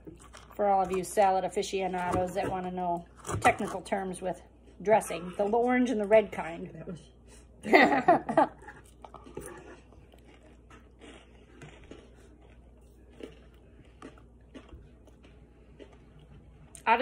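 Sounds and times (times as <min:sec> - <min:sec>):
person chewing salad: 0:00.0 - 0:01.1, 0:08.5 - 0:16.9.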